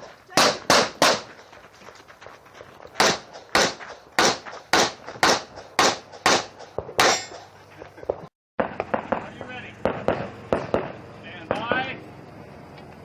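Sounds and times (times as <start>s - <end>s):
pistol shots: 0.4s - 1.4s, 3.0s - 7.5s, 8.6s - 11.6s.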